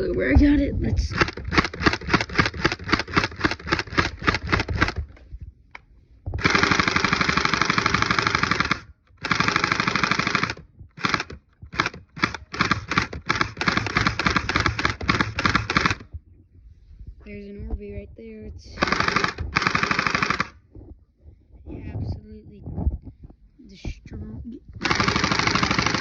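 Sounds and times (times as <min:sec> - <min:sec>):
gel ball blaster firing: 0:01.1 - 0:05.1, 0:06.4 - 0:16.0, 0:18.8 - 0:20.6, 0:24.8 - 0:26.0.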